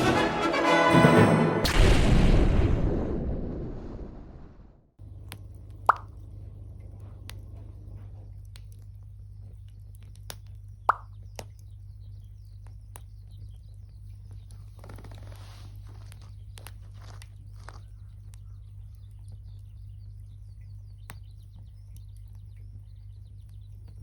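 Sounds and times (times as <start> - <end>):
steady low hum: 1.7 - 24.0
sharp pops: 5.3 - 6.2, 10.2 - 11.6
short plops dropping in pitch: 5.8 - 6.2, 10.9 - 11.2.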